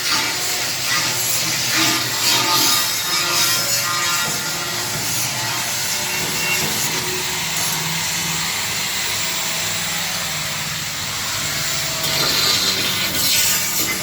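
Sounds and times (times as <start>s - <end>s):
industrial washing machine running: 0.0s - 14.0s.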